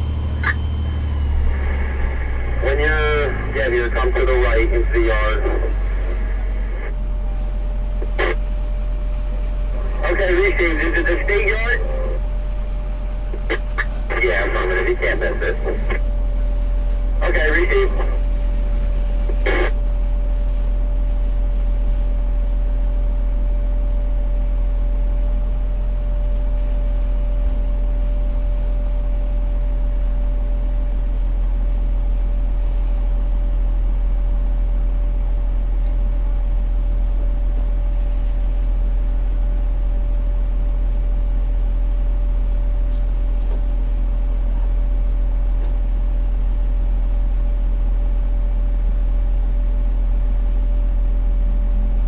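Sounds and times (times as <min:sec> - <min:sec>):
thin steady whine: 0:00.0 - 0:25.5
diesel engine humming: 0:00.0 - 0:25.7, 0:49.4 - 0:52.0.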